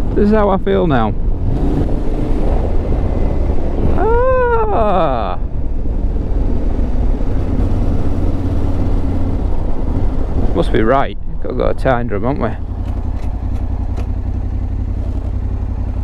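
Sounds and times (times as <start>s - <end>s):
motorcycle engine running: 0.0s - 16.0s
wind and road noise: 0.0s - 16.0s
person saying ah: 4.0s - 5.4s.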